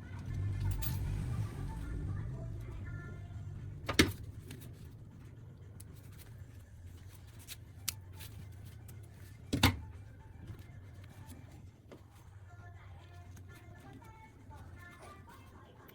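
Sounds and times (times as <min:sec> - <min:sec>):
low steady hum: 0:00.0 - 0:15.9.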